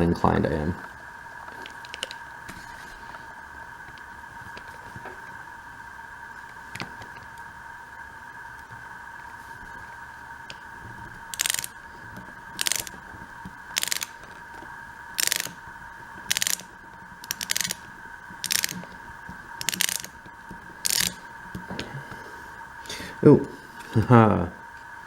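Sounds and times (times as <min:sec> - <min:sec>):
screwdriver ratcheting: 0:01.6 - 0:02.2, 0:11.3 - 0:11.8, 0:12.6 - 0:13.0, 0:13.7 - 0:14.4, 0:15.2 - 0:15.6, 0:16.2 - 0:18.9, 0:19.6 - 0:20.2, 0:20.8 - 0:21.2.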